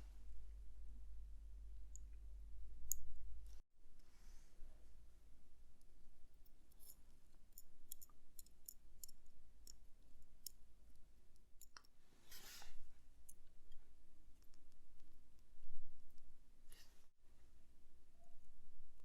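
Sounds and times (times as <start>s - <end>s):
small metal tool clicks: 6.7s - 10.6s, 11.6s - 11.9s.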